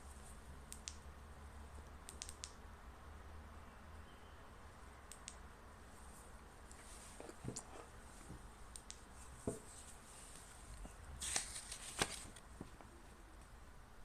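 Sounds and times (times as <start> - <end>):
packaging rustle: 11.2 - 12.5.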